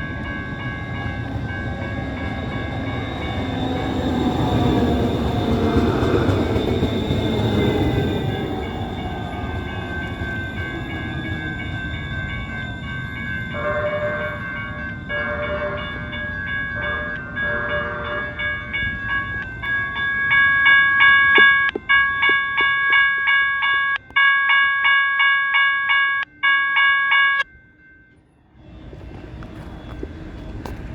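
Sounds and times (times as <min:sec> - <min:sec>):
train rumbling on rails: 0:00.0 - 0:23.9, 0:27.6 - 0:30.9
train horn blasts: 0:13.5 - 0:14.5, 0:15.1 - 0:18.6.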